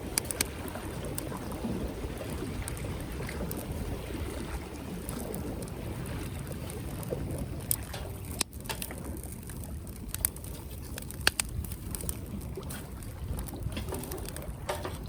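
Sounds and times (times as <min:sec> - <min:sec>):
wood fire crackling and popping: 0:00.0 - 0:01.6, 0:05.0 - 0:15.0.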